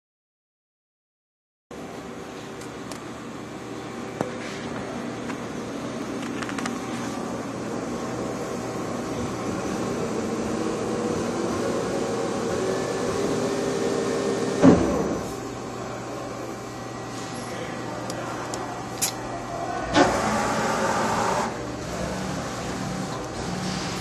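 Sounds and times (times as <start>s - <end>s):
machine tool humming and whining: 5.0s - 24.0s.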